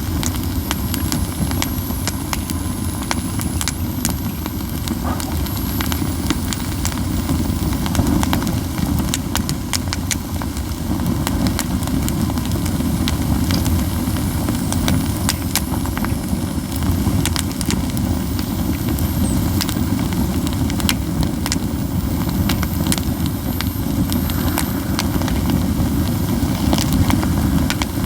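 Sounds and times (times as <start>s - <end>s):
fire low rumble: 0.0s - 28.0s
pine cones crackling and popping: 0.0s - 28.0s
thin high whistle: 0.4s - 8.6s, 17.8s - 28.0s.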